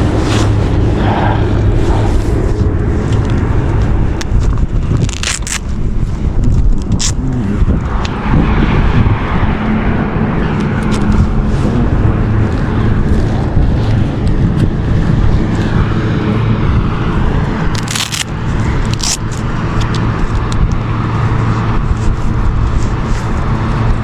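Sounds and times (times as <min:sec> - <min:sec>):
air rushing past: 0:00.0 - 0:18.8
motorcycle engine running: 0:00.0 - 0:24.0.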